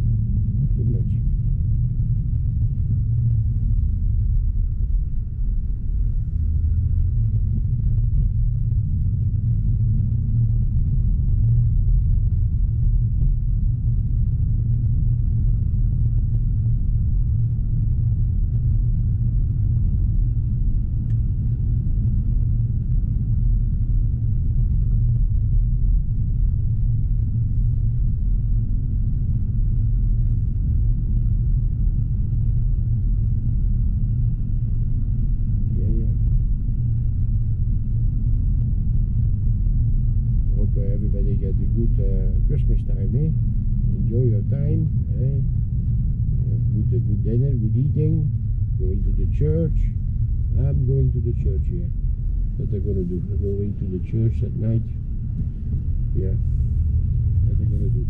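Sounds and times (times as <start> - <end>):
road and tyre rumble in car cabin: 0.0 - 58.0.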